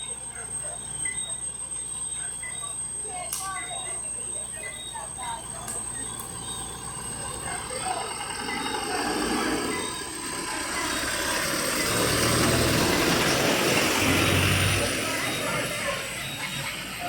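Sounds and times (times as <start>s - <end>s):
vehicle driving past: 6.5s - 17.0s.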